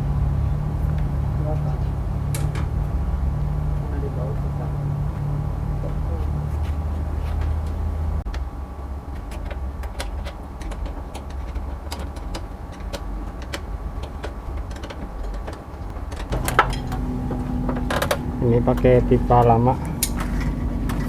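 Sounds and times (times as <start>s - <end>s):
low mechanical hum: 0.0s - 21.0s
higher-pitched hum: 15.3s - 21.0s.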